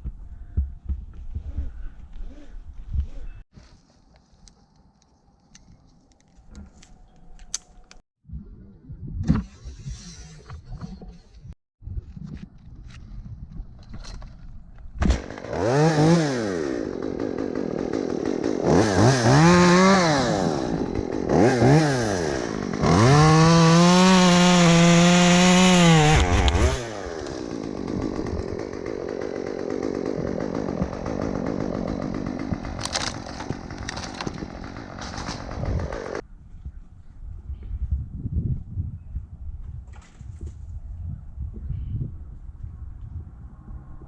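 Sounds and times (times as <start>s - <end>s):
chainsaw revving: 15.2s - 36.2s.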